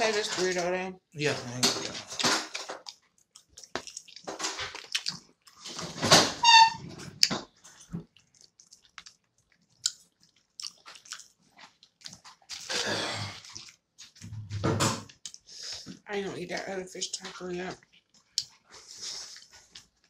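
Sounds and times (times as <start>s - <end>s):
aluminium foil rustling: 0.0s - 0.8s
chewing crunchy fried food: 1.8s - 6.0s, 7.0s - 14.3s, 16.5s - 20.0s
high squeak: 6.4s - 6.8s.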